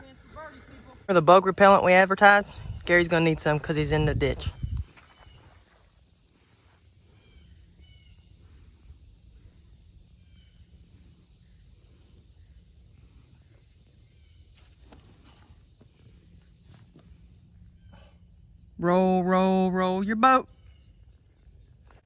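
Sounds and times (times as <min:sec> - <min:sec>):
faint insect hum: 0:00.0 - 0:22.0
faint rustles: 0:04.3 - 0:18.4.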